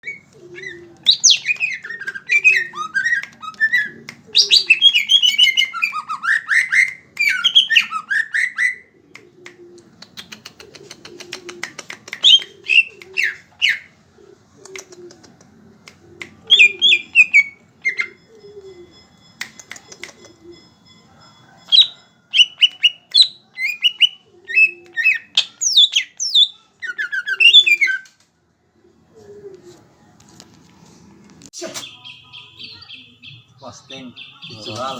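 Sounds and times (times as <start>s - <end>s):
bird singing whistled phrases: 0.0s - 8.8s, 16.5s - 18.2s, 21.8s - 28.1s
bird ticking notes: 0.0s - 13.8s, 14.7s - 28.0s.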